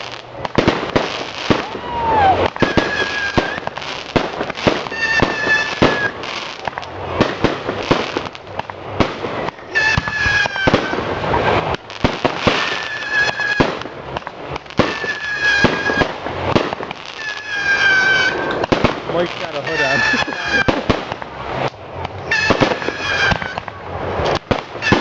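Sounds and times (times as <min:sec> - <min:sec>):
falling firework whistle: 0:00.0 - 0:06.5, 0:09.4 - 0:14.0, 0:14.8 - 0:18.7, 0:19.7 - 0:21.0, 0:22.2 - 0:25.0
fireworks cracking and popping: 0:00.0 - 0:25.0.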